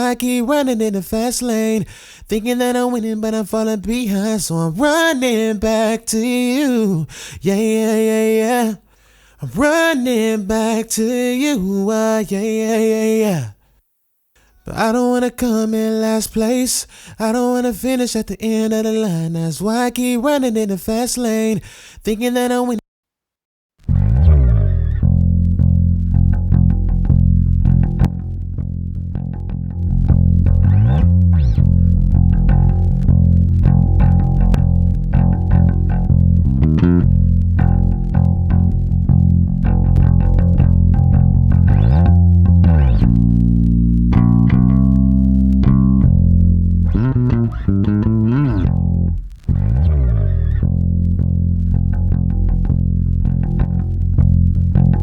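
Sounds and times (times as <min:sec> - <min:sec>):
solo bass guitar: 0:23.9 - 0:55.0.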